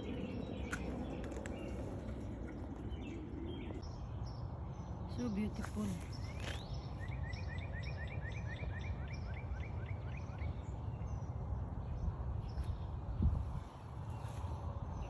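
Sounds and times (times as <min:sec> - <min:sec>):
steady low rumble: 0:00.0 - 0:03.9
bird chirping: 0:00.0 - 0:12.9.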